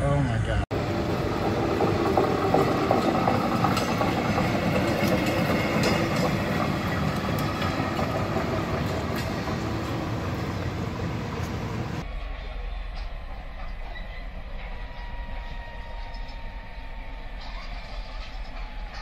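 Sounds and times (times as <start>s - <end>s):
rail vehicle rushing past: 0.0s - 19.0s
rail clicks: 0.7s - 19.0s.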